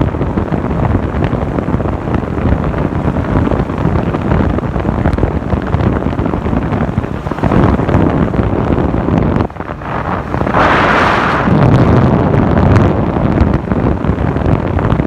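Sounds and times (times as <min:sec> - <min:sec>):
road noise: 0:00.0 - 0:15.0
wind buffeting microphone: 0:00.0 - 0:15.0
motorcycle engine: 0:01.8 - 0:11.9.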